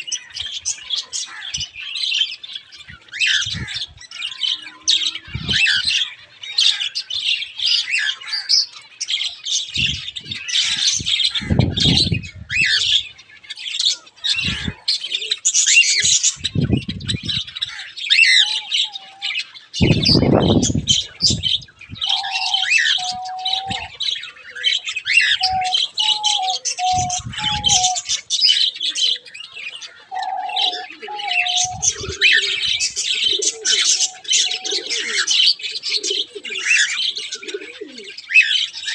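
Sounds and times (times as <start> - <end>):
aviary birds chirping and calling: 0.0 - 38.9
low cooing: 22.0 - 28.1, 30.1 - 38.2.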